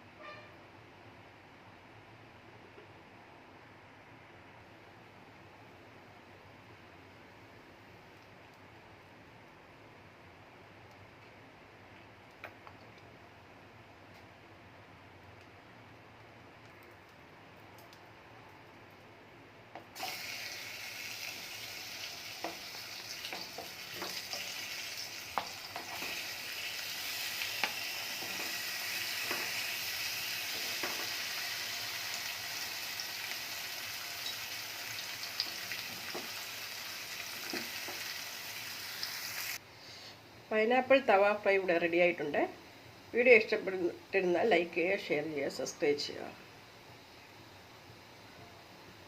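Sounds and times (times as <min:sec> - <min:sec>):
fruit sizzling on a hot pan: 0:19.9 - 0:39.6.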